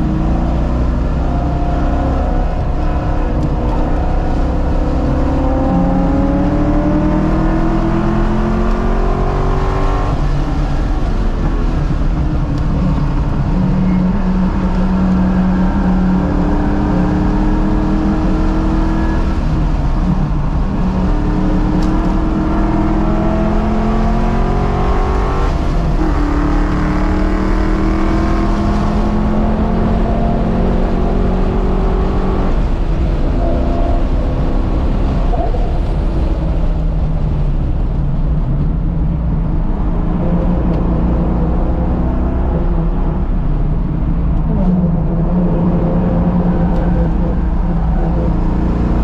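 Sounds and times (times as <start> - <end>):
car engine revving inside cabin: 0.0 - 49.0.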